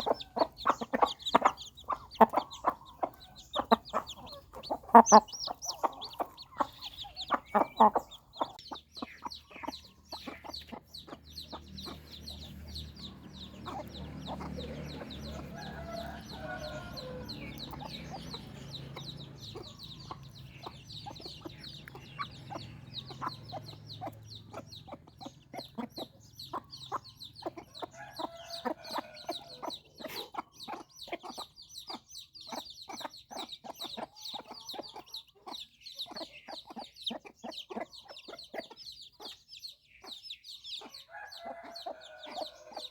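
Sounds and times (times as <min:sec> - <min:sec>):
low clucking: 0:00.0 - 0:30.9
chicks peeping: 0:00.0 - 0:42.9.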